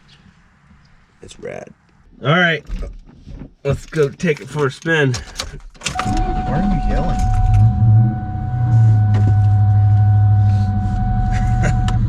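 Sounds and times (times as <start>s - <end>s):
car engine idling: 5.2s - 12.0s.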